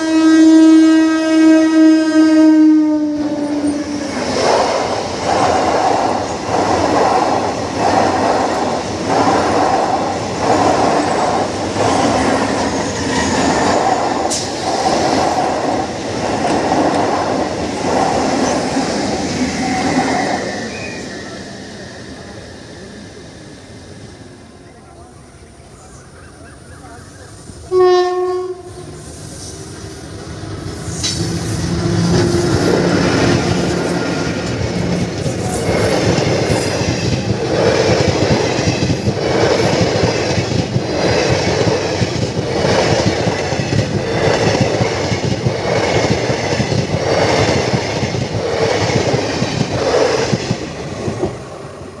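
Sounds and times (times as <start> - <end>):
train horn blast: 0.0 - 4.1, 27.7 - 29.1
train wheel clatter: 29.3 - 51.4.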